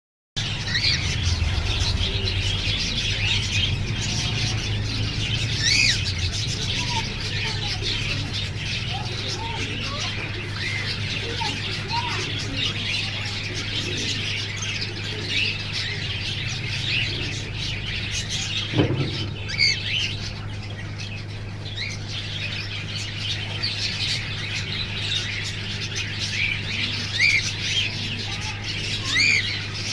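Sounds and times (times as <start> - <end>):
flock of birds chirping: 0.4 - 29.9
steady low hum: 0.4 - 29.9.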